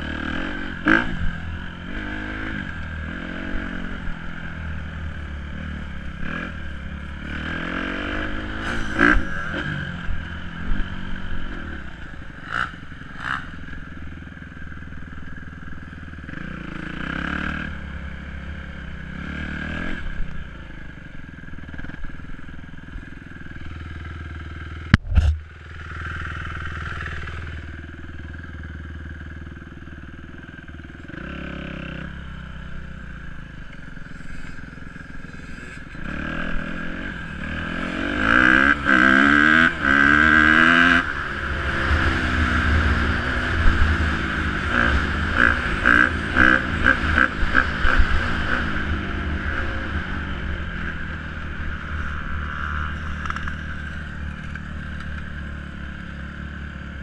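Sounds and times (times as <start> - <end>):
dirt bike engine revving: 0.0 - 14.2, 16.2 - 20.4, 31.0 - 57.0.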